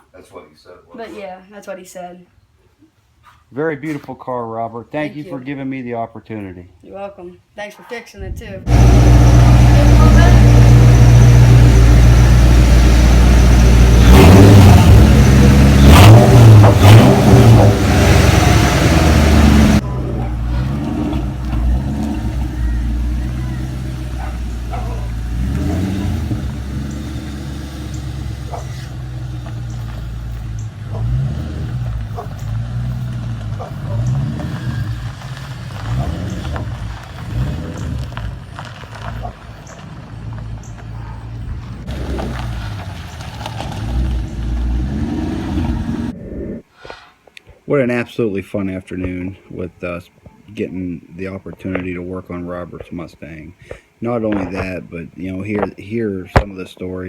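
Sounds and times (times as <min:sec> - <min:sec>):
car engine revving and idling: 0:08.7 - 0:46.2.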